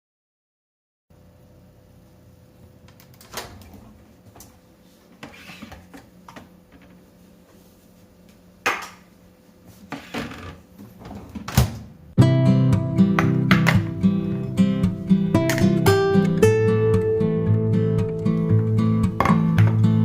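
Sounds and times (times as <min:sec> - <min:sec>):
faint steady hum: 0:01.1 - 0:12.2
household objects knocking: 0:13.2 - 0:13.9, 0:19.2 - 0:19.8.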